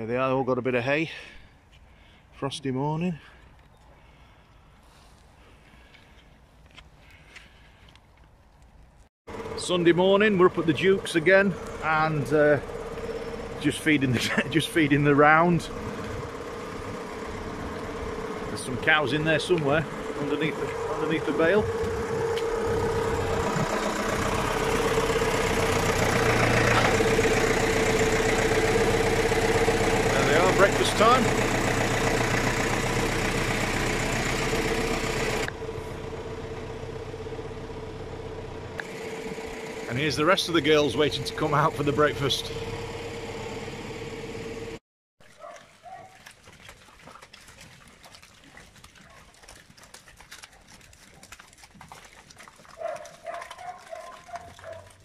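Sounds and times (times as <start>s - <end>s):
tractor engine idling: 4.0s - 8.0s, 9.3s - 44.8s
hooves knocking and clattering: 9.6s - 33.4s, 45.2s - 55.0s
cattle calls: 50.2s - 55.0s.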